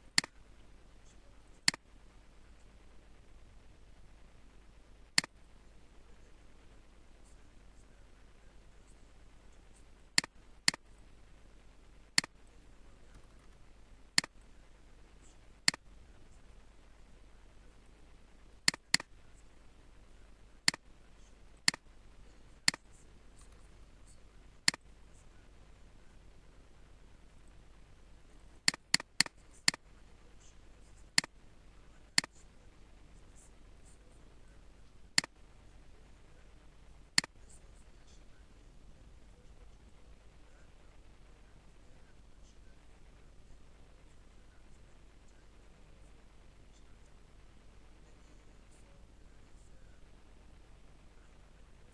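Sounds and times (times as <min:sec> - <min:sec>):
faint steady hiss: 0:00.0 - 0:51.9
computer mouse clicking: 0:00.1 - 0:00.4, 0:01.2 - 0:01.8, 0:10.2 - 0:10.9, 0:13.1 - 0:13.6, 0:14.2 - 0:14.4, 0:15.6 - 0:15.8, 0:18.6 - 0:19.1, 0:20.6 - 0:20.8, 0:21.6 - 0:21.9, 0:22.6 - 0:23.8, 0:28.6 - 0:29.9.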